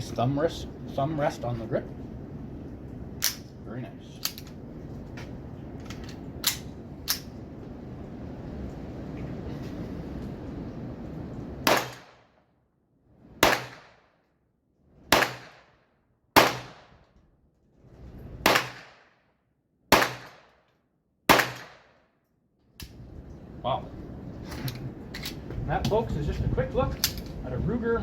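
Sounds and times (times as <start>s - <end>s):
pistol shots: 11.6s - 12.2s, 13.4s - 14.0s, 15.1s - 15.8s, 16.4s - 16.9s, 18.4s - 19.1s, 19.9s - 20.6s, 21.3s - 22.0s.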